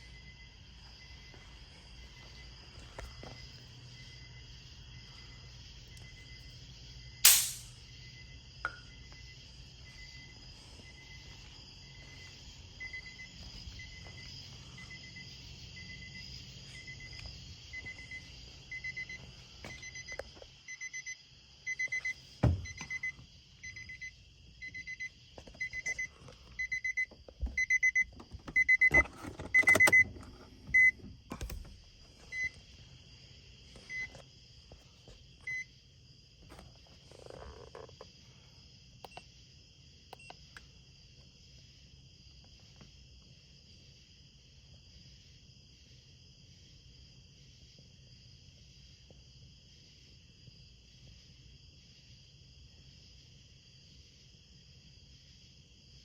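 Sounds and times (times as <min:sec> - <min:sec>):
sharp click: 0:07.3 - 0:07.8.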